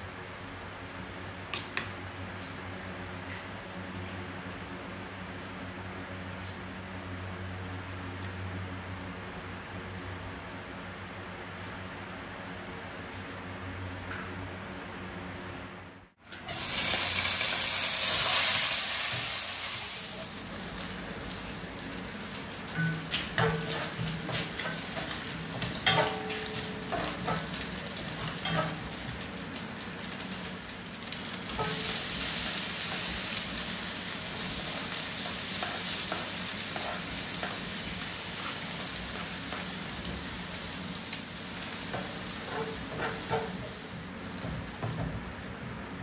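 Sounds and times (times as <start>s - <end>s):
food sizzling in hot oil: 16.4s - 46.0s
cooking utensil scraping pan: 41.9s - 44.6s.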